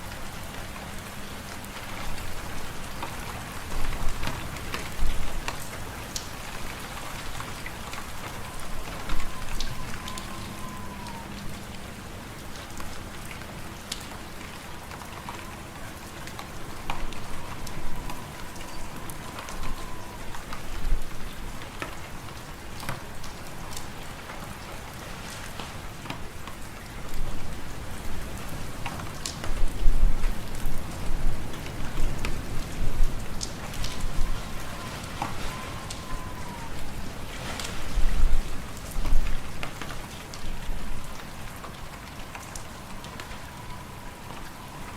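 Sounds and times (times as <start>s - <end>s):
wind whistling: 6.8s - 12.4s, 29.7s - 39.2s.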